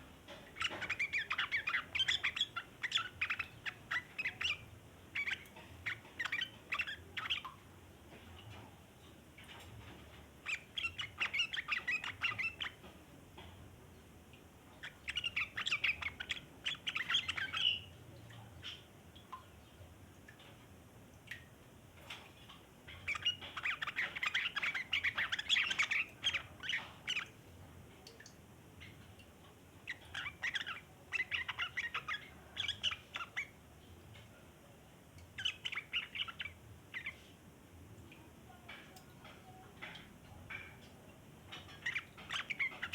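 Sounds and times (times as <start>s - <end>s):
bird twittering: 0.4s - 7.6s, 10.4s - 12.9s, 14.8s - 18.0s, 22.9s - 27.4s, 29.8s - 33.6s, 35.4s - 37.3s, 41.5s - 42.9s.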